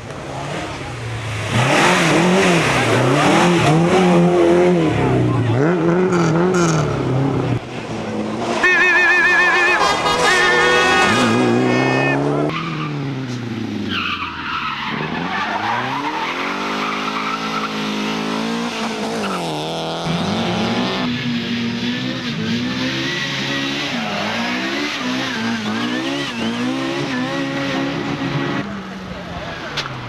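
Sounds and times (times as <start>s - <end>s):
car engine revving hard: 0.3s - 7.6s, 15.8s - 28.6s.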